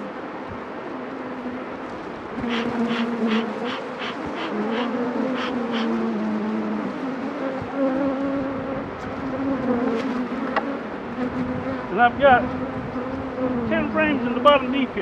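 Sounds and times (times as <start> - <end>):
honeybees buzzing: 0.0 - 15.0
short hissy pulses: 2.4 - 6.0.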